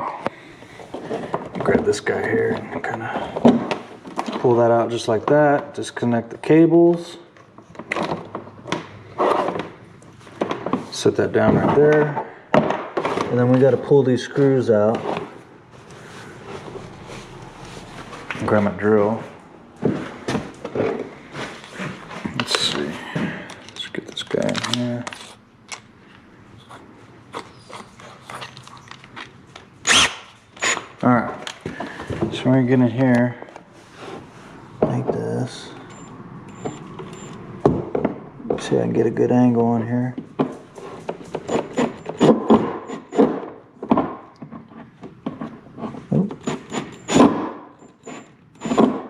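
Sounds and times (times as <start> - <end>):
drill high whines: 29.8 - 30.8, 35.9 - 37.4
drill bit knocking and scraping: 40.9 - 43.5, 44.8 - 49.0.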